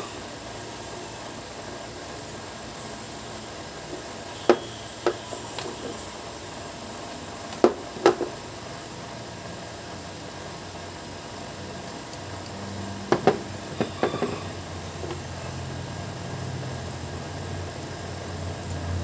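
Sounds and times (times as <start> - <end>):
steady hiss: 0.0 - 19.0
sharp knocks: 7.6 - 8.3, 13.1 - 15.2.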